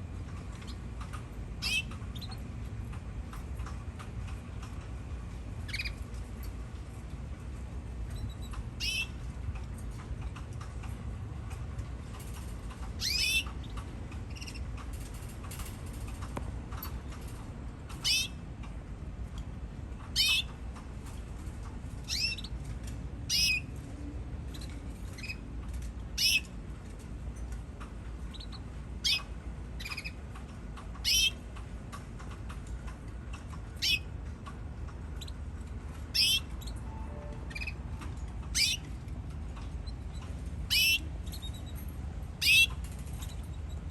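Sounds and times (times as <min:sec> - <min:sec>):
canaries chirping: 0:01.6 - 0:02.5, 0:05.6 - 0:06.0, 0:08.1 - 0:09.2, 0:12.9 - 0:14.8, 0:18.0 - 0:18.4, 0:20.1 - 0:20.6, 0:22.0 - 0:22.5, 0:23.3 - 0:23.7, 0:26.2 - 0:26.5, 0:28.3 - 0:30.2, 0:31.0 - 0:31.4, 0:33.8 - 0:34.1, 0:36.1 - 0:39.0, 0:39.6 - 0:41.8, 0:42.4 - 0:43.9
low hum: 0:33.7 - 0:42.2.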